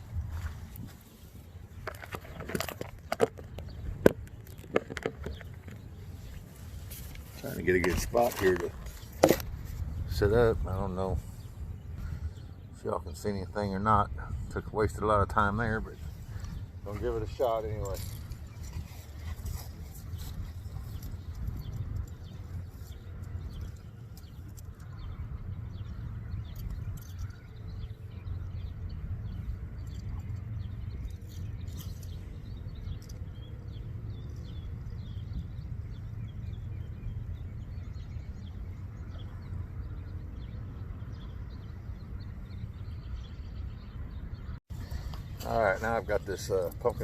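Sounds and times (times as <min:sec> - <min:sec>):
clicks and handling noises: 0:01.7 - 0:09.9.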